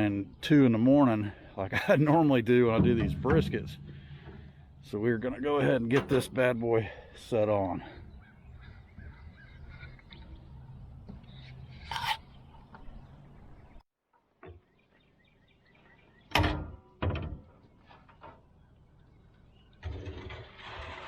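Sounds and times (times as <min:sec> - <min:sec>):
metal clunks on smoker: 0:02.7 - 0:06.5, 0:16.3 - 0:17.4.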